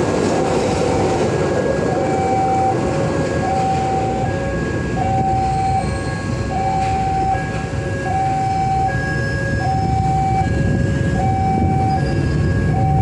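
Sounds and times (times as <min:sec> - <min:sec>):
train rumbling past: 0:00.0 - 0:13.0
two-tone crossing alarm: 0:00.2 - 0:13.0.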